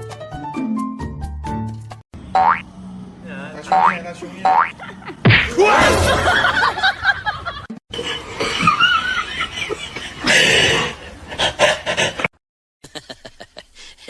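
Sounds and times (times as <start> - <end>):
people laughing and snickering: 4.8 - 14.0.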